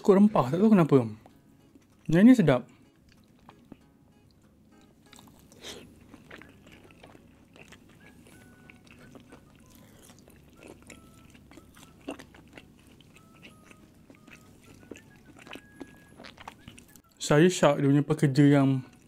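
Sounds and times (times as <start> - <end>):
soft chewing with wet smacks: 2.7 - 17.1.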